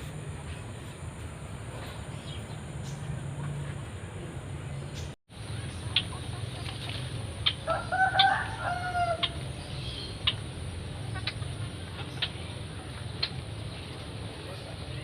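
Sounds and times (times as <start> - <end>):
distant rooster crowing: 7.6 - 9.5.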